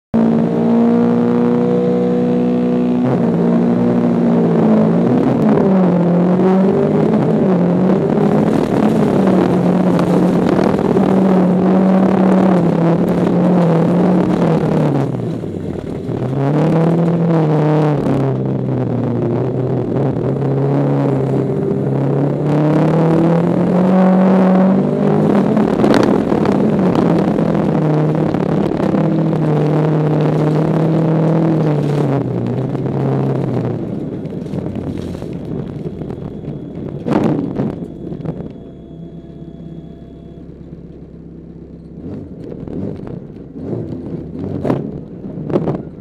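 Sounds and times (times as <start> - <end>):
car engine revving: 0.2 - 46.0
rough road noise: 0.2 - 46.0.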